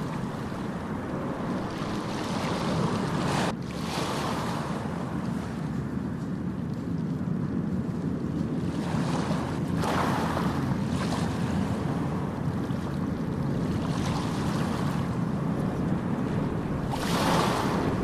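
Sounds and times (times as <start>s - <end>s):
wave breaking: 0.0s - 5.6s, 8.6s - 18.0s
ocean waves: 0.0s - 6.8s, 8.4s - 18.0s.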